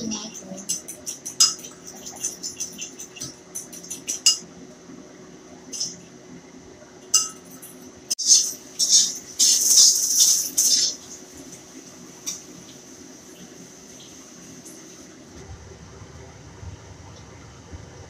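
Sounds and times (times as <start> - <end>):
wok and utensils clattering: 0.0 - 4.5, 7.1 - 11.0
spoon clinking ceramic bowl: 7.2 - 7.6.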